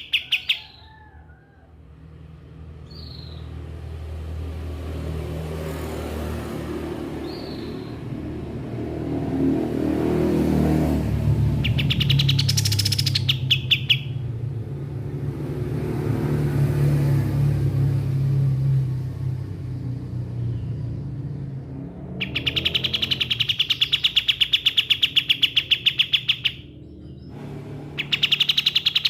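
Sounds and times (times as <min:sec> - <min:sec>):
songbird trilling high notes: 0:00.0 - 0:01.0, 0:11.6 - 0:14.3, 0:22.2 - 0:29.0
bird chirp: 0:00.0 - 0:01.1, 0:02.8 - 0:03.6, 0:07.1 - 0:08.2, 0:11.3 - 0:14.4, 0:20.3 - 0:29.0.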